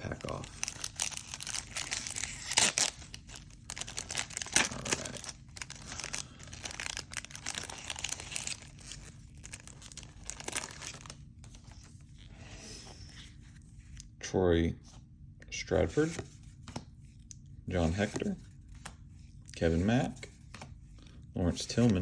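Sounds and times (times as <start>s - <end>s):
wrapper tearing and crinkling: 0.0s - 11.2s.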